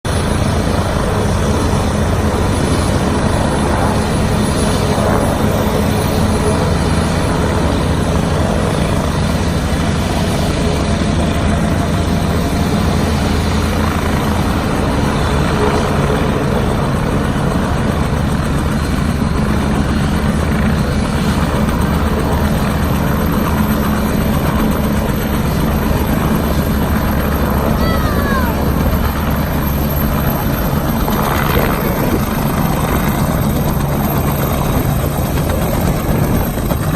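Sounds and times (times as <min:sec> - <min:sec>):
helicopter running: 0:00.1 - 0:36.9.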